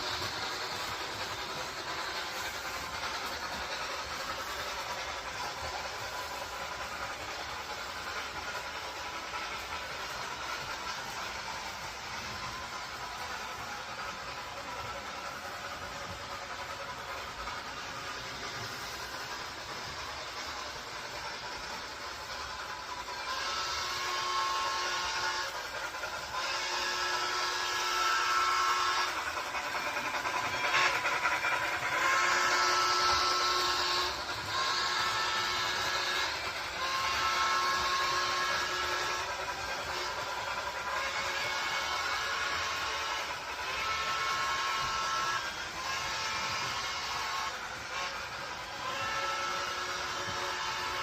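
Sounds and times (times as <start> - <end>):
train whirring with faint whine: 0.0 - 51.0
train whistle blasts: 23.2 - 29.3, 31.8 - 51.0.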